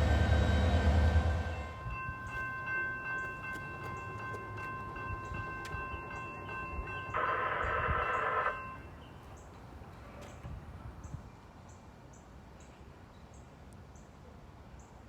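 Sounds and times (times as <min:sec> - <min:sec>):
train rumbling past: 0:00.0 - 0:11.4.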